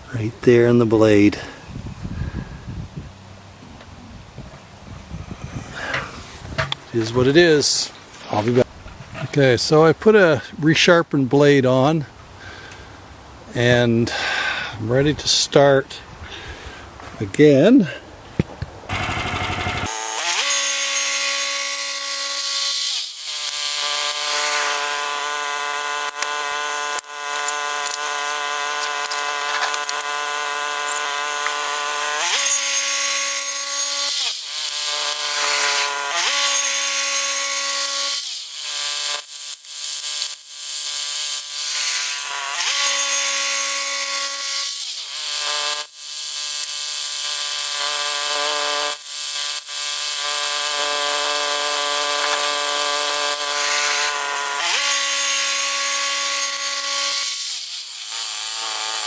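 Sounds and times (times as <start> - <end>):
bandsaw mill sawing log: 18.9 - 59.0.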